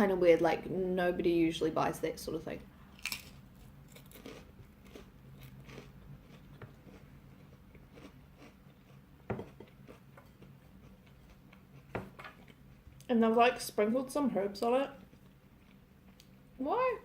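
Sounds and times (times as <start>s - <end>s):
person chewing food: 3.0s - 13.1s, 15.0s - 16.4s.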